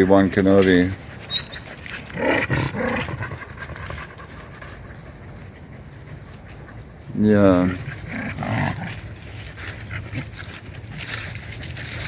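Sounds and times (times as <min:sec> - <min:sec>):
dog growling: 0:02.0 - 0:04.1, 0:07.7 - 0:09.0.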